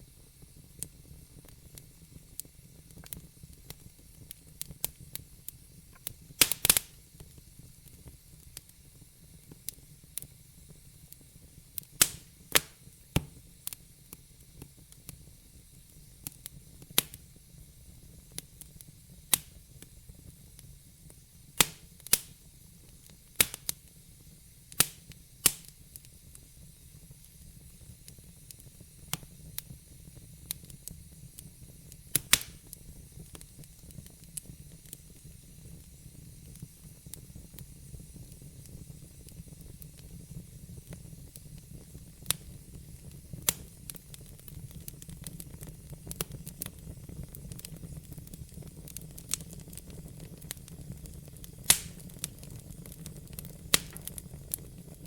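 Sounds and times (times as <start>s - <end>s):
wood fire rumble and hiss: 0.0s - 55.0s
logs crackling and popping: 5.9s - 7.4s, 11.8s - 13.8s, 21.6s - 22.4s, 23.4s - 23.8s, 24.7s - 26.4s, 31.9s - 35.0s, 40.9s - 55.0s.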